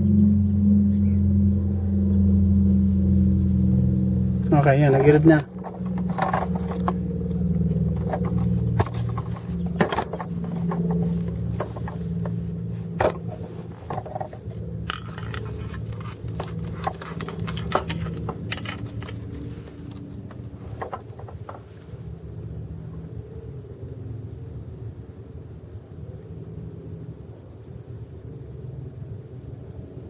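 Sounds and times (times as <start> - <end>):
car engine idling: 0.0 - 23.2.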